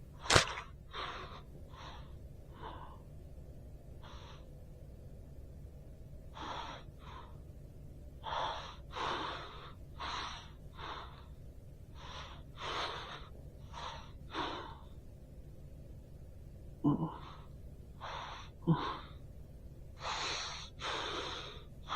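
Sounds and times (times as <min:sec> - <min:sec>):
low hum: 0:00.0 - 0:21.9
person gasping breaths: 0:16.9 - 0:19.2, 0:20.0 - 0:21.9.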